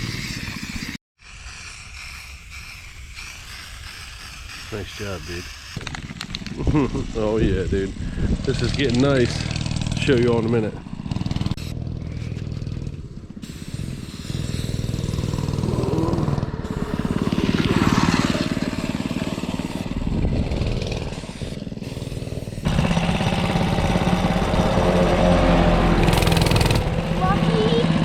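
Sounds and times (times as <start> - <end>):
vehicle engine revving: 7.9 - 13.6, 14.3 - 28.0.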